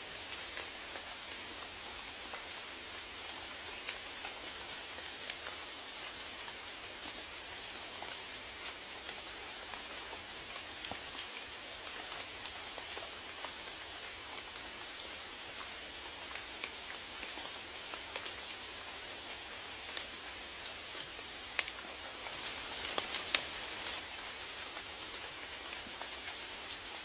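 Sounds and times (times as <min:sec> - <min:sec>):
steady rain hiss: 0:00.0 - 0:27.0
raindrops tapping: 0:21.5 - 0:26.8.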